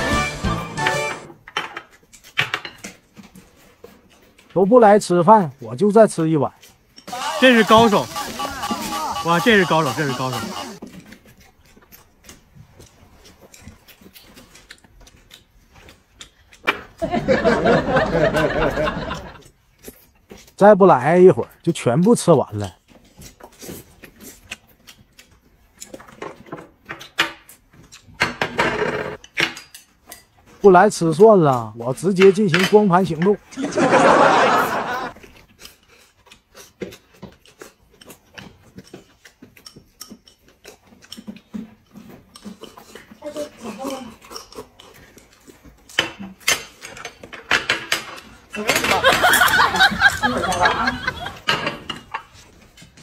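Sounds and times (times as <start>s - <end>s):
loud voice talking or laughing: 7.1s - 10.8s
chewing: 10.6s - 17.0s, 22.6s - 26.2s, 35.2s - 47.4s.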